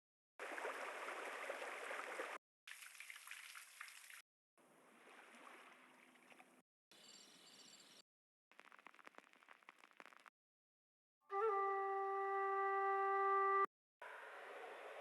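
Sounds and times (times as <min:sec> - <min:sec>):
water noise: 0:00.4 - 0:06.6.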